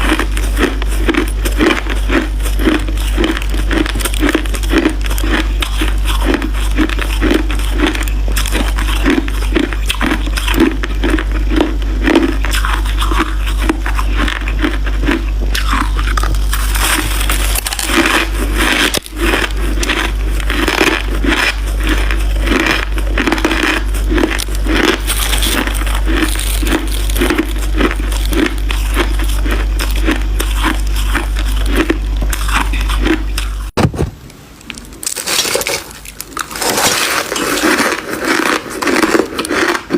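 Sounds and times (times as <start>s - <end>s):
crushed ice being chewed: 0.0s - 33.8s, 34.6s - 39.9s
constant low hum: 0.0s - 39.9s.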